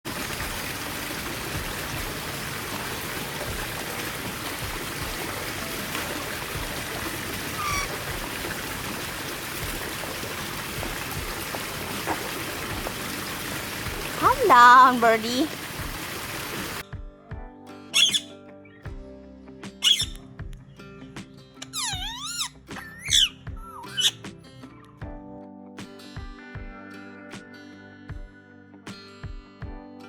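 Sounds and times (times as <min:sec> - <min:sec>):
bird chirp: 0:07.6 - 0:08.0, 0:18.0 - 0:18.3, 0:19.8 - 0:20.2, 0:21.6 - 0:24.2.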